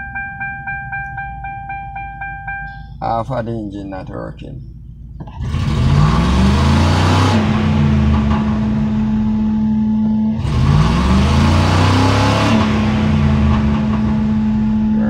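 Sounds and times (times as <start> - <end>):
car engine revving: 0.0 - 15.0
person talking: 3.0 - 4.6.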